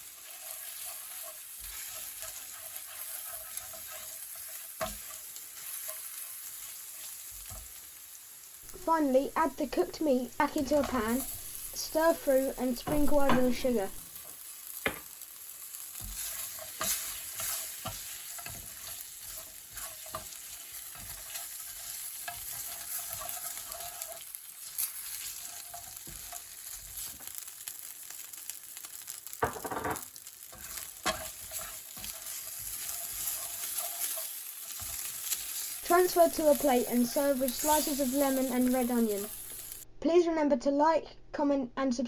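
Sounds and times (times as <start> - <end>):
utensil scraping a pan: 0.0 - 7.7, 15.9 - 27.4, 30.5 - 39.8
chicken sizzling in hot oil: 0.0 - 39.9.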